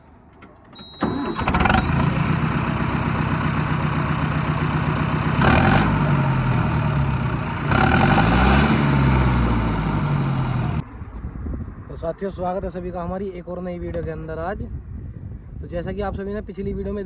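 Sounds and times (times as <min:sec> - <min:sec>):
tractor engine cranking and starting: 0:00.2 - 0:10.8
engine running with high whine: 0:00.8 - 0:10.8.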